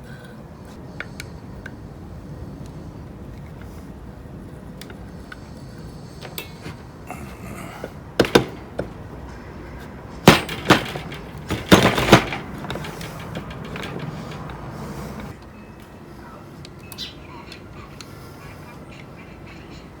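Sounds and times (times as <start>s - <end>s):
hard parts clicking and knocking: 4.8s - 15.4s.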